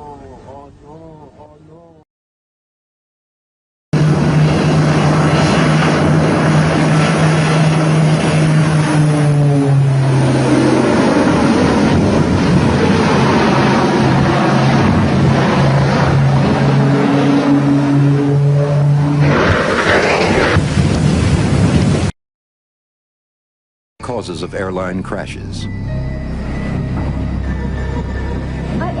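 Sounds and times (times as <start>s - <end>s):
low hum: 4.0s - 21.6s, 24.0s - 29.0s
jet engines roaring: 4.0s - 22.1s, 24.0s - 29.0s.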